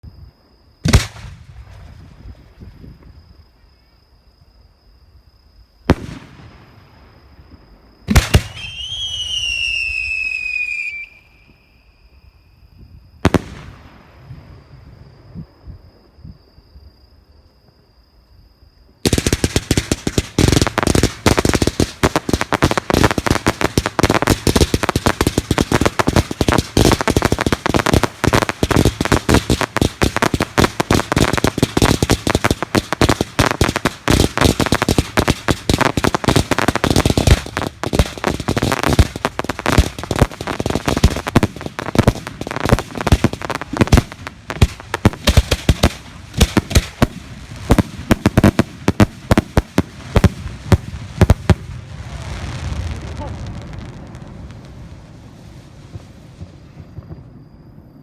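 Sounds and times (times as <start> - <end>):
fireworks bangs and crackles: 0.8 - 3.3, 5.8 - 11.6, 13.1 - 15.6, 19.0 - 58.0.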